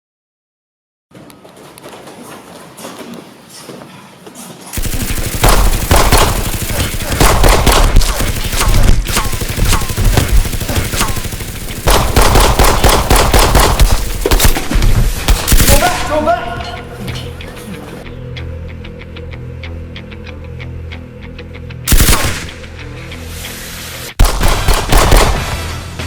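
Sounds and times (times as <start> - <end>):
rapid gunfire: 4.8 - 16.3, 21.9 - 22.7, 24.2 - 26.0.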